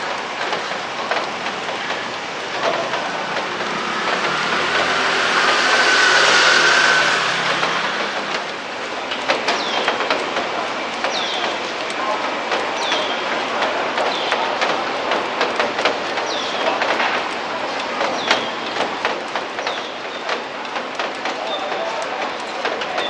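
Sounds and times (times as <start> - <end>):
steady rain: 0.0 - 23.0
passing vehicle hum: 2.4 - 9.4.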